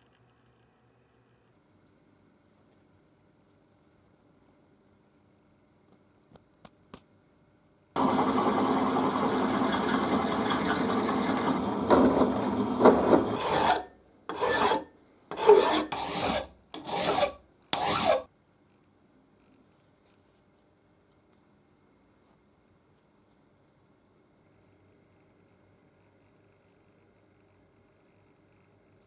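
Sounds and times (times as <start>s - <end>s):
file rasping metal: 9.5s - 18.3s.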